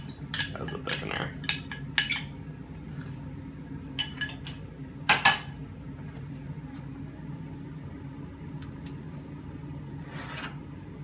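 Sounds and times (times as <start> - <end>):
utensil clinking against a bowl: 0.0 - 2.4, 4.0 - 5.5
steady low hum: 0.0 - 11.0.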